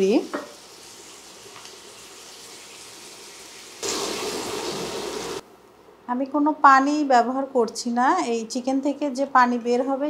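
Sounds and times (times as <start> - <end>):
chicken sizzling in frying pan: 0.0 - 5.4.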